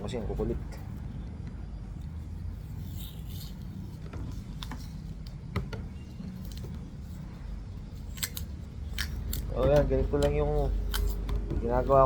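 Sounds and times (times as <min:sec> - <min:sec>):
hands handling and taping clicks: 0:08.1 - 0:12.0.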